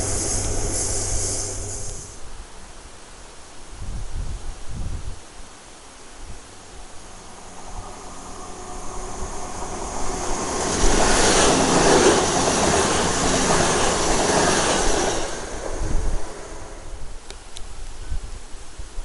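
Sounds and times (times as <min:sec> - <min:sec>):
train passing platform: 0:00.0 - 0:02.2, 0:06.4 - 0:17.3
train wheels and engine noise: 0:00.0 - 0:02.2, 0:06.4 - 0:17.6.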